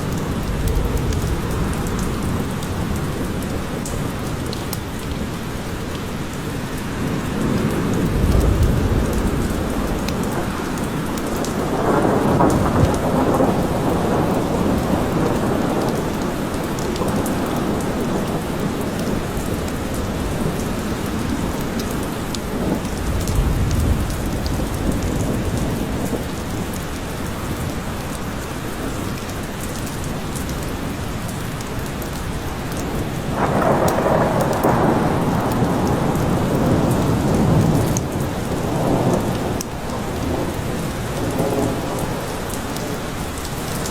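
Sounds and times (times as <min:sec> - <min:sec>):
steady rain falling: 0:00.0 - 0:43.9
rolling thunder: 0:07.4 - 0:26.3, 0:33.3 - 0:43.7.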